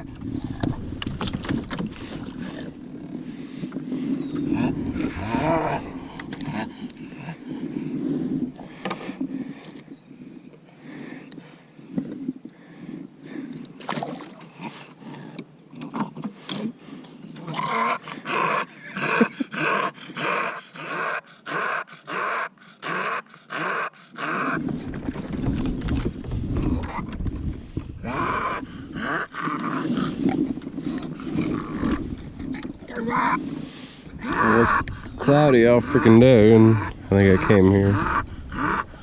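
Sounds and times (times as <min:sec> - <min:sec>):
dog breathing noisily: 0:01.7 - 0:09.8
low rumble: 0:04.2 - 0:08.6.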